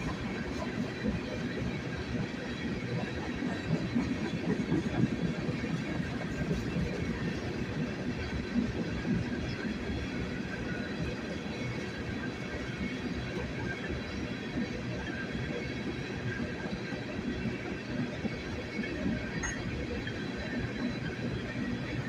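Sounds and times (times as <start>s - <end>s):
train wheels clattering over rails: 0.0s - 22.0s.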